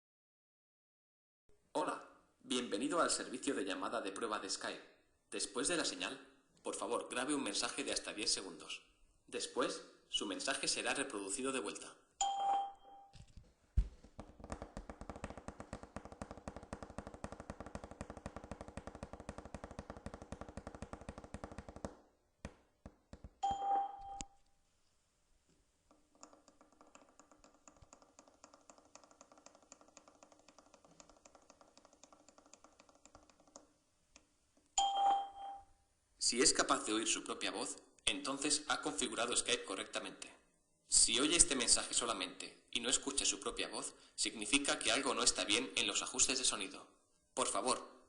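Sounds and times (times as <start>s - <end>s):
short electronic beep: 23.4s - 24.4s.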